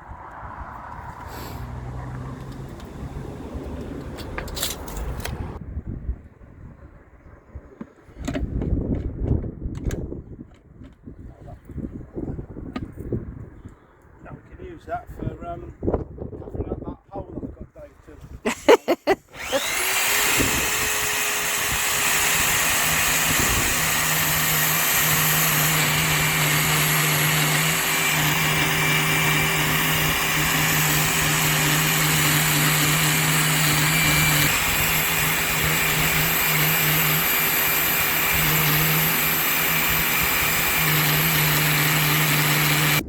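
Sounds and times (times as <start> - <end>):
motor whining: 19.3 - 43.0.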